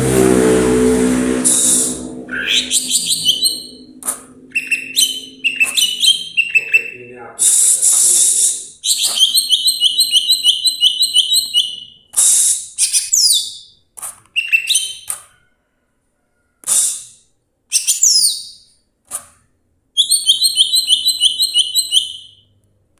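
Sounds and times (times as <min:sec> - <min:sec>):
bird singing: 0:01.4 - 0:12.1, 0:12.8 - 0:15.5, 0:17.7 - 0:18.7, 0:20.0 - 0:22.5.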